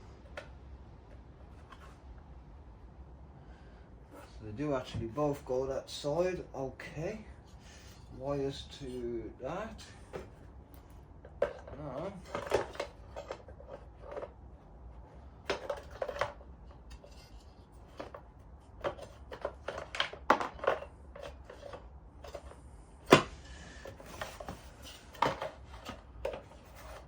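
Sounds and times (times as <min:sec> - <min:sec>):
parts clicking and clattering: 0:09.7 - 0:14.5, 0:15.4 - 0:27.0.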